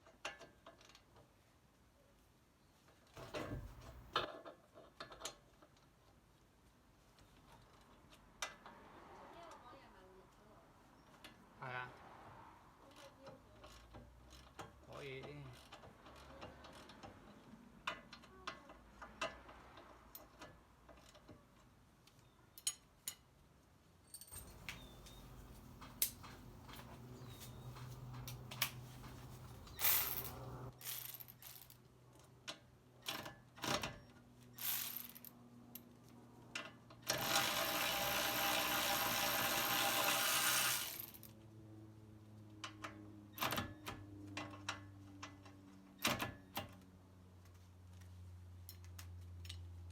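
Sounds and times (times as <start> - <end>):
metallic clicks and clanks: 24.1 - 31.7
power tool running: 37.1 - 41.3.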